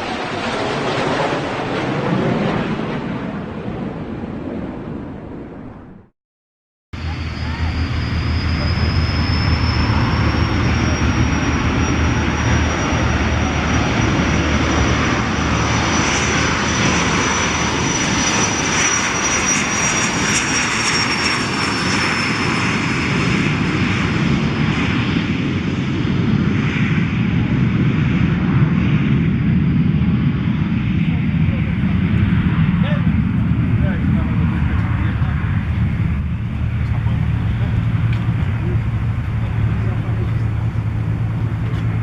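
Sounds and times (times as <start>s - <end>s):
aircraft engine rush: 0.0s - 6.0s, 7.0s - 42.0s
high turbine whine: 7.0s - 22.5s, 31.5s - 42.0s.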